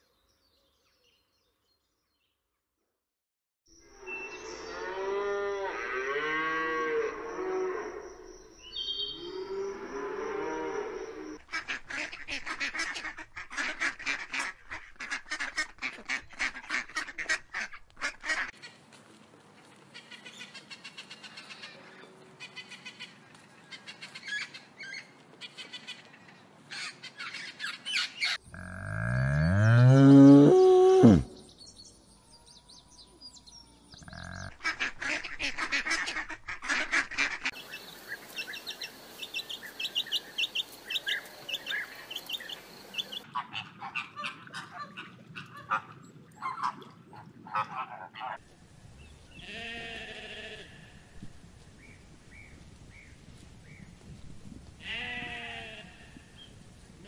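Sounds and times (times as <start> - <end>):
cow mooing: 28.5 - 31.4.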